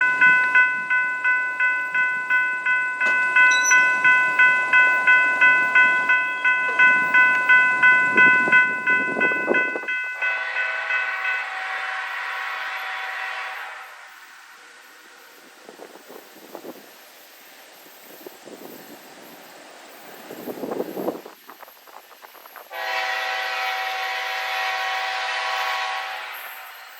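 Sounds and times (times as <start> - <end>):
railroad crossing bell ringing: 0.0 - 13.3
passing train rumble: 0.0 - 26.9
train horn chord: 10.2 - 14.3, 22.7 - 26.9.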